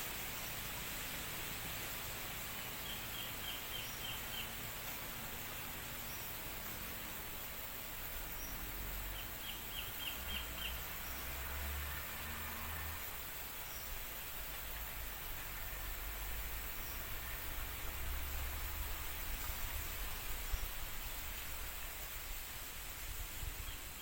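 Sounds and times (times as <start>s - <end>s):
wind blowing: 14.6s - 24.0s.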